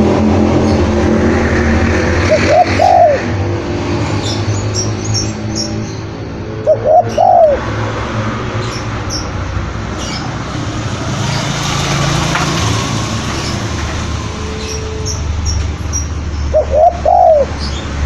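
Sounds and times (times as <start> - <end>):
dove cooing: 2.2 - 3.4, 6.1 - 8.2, 16.5 - 17.6.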